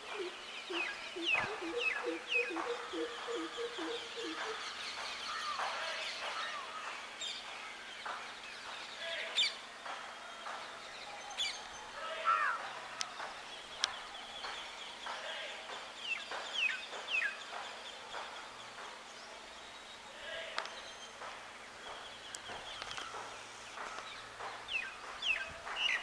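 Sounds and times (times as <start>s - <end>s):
birds chirping and whistling: 0.0s - 9.6s, 20.6s - 26.0s.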